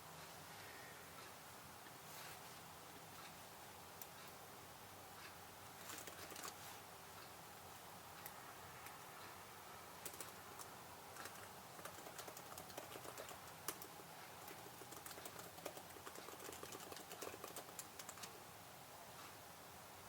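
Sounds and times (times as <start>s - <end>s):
computer keyboard typing: 5.8s - 6.6s, 10.0s - 18.4s.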